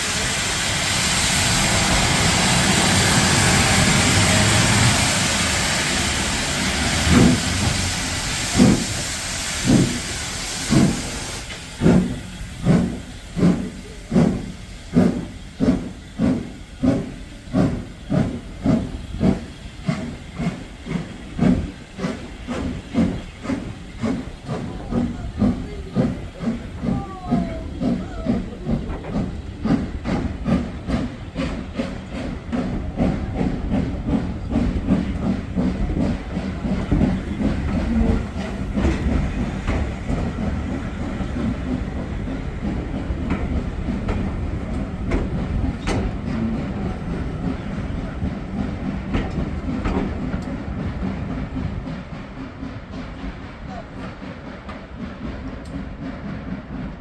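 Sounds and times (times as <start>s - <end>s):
steam hissing: 0.0s - 57.0s
steam locomotive exhaust chuffs: 0.0s - 57.0s.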